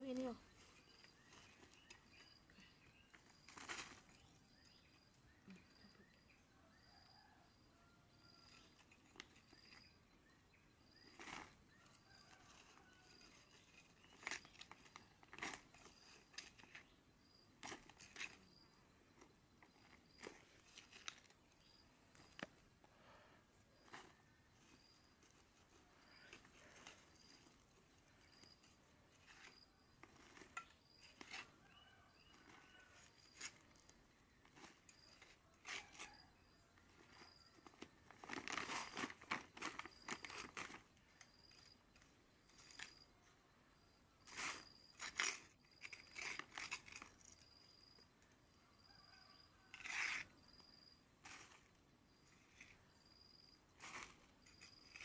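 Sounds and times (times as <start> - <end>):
faint high chirp: 0.0 - 15.1, 47.3 - 49.9
rustling and crinkling: 0.0 - 55.0.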